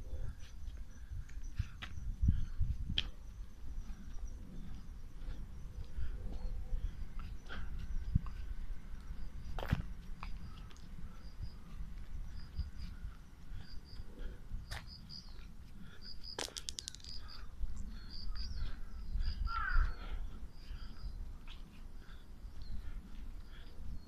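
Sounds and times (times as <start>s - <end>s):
small birds chirping: 0.1s - 24.0s
sharp clicks: 16.3s - 17.4s
crow cawing: 19.4s - 20.2s.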